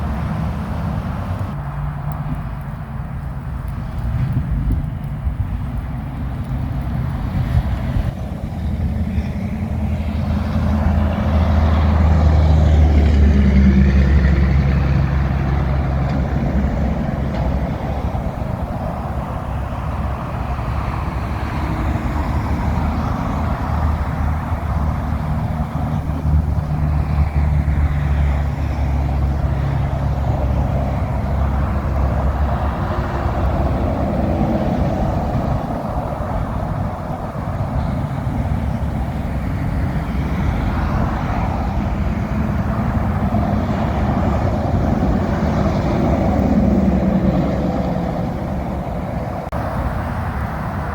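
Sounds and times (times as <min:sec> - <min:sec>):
diesel trucks passing: 0:00.0 - 0:50.9
tyres hissing on wet road: 0:00.0 - 0:50.9.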